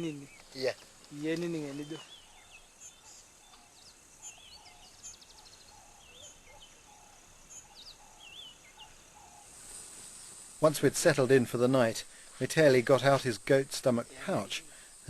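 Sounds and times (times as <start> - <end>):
birds calling: 0.0 - 10.6
light hiss: 0.0 - 15.0.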